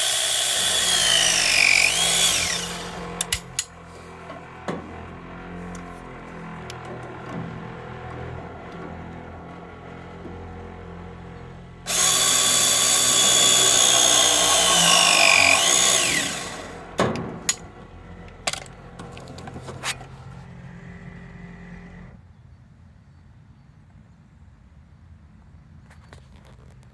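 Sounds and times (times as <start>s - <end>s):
press tool motor whine: 0.0s - 22.2s
sharp clicks: 0.4s - 3.7s.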